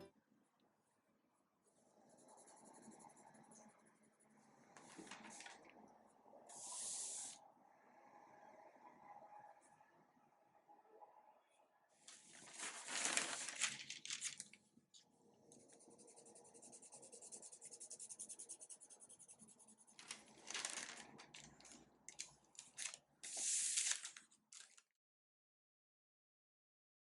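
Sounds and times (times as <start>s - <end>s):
fast back-and-forth scratching: 1.9s - 4.4s, 15.6s - 21.7s
dry papery rustling: 12.1s - 14.6s, 19.9s - 24.9s.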